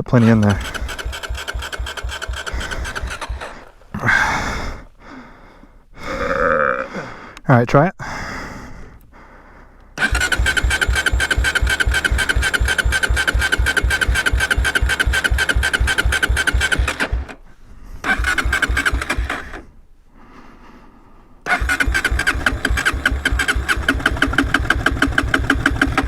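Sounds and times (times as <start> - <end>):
electric starter cranking engine: 0.0 - 4.4, 10.0 - 19.8, 21.5 - 26.0.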